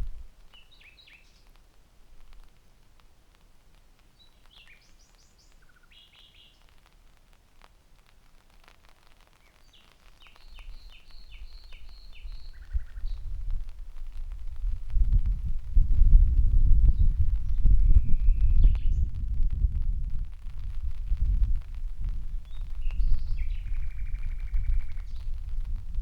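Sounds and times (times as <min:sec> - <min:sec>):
nightingale singing: 0:00.5 - 0:01.5, 0:04.2 - 0:06.7, 0:09.4 - 0:13.4, 0:16.8 - 0:19.3, 0:22.4 - 0:25.8.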